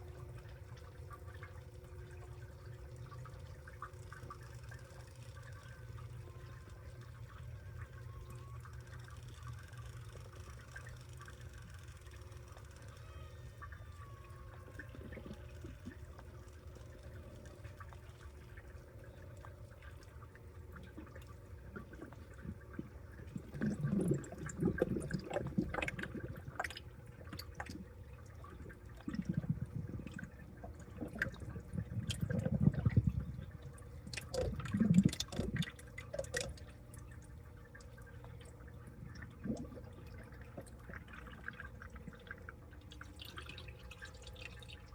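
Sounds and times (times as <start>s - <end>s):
water sloshing in washing machine: 17.2s - 44.9s.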